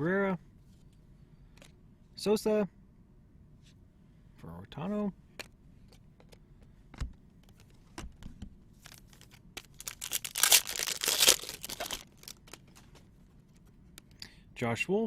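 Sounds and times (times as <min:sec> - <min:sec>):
wrapper tearing and crinkling: 0:08.8 - 0:12.9.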